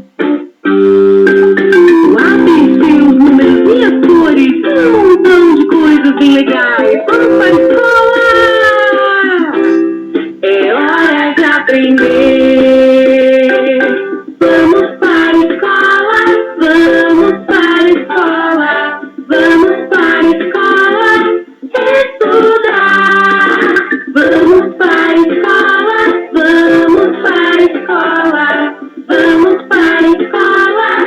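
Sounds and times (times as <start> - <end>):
strummed plucked strings: 0.1 - 10.7
person singing: 0.8 - 31.0.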